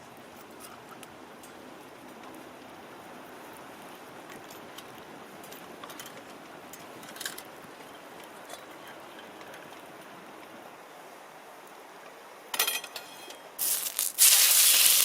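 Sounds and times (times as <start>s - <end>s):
campfire crackling: 1.0s - 8.3s, 13.6s - 15.0s.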